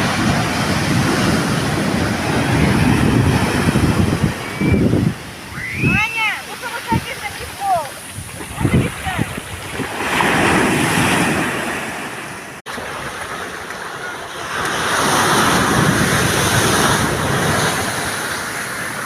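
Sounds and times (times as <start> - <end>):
surf breaking on shore: 0.0 - 19.0.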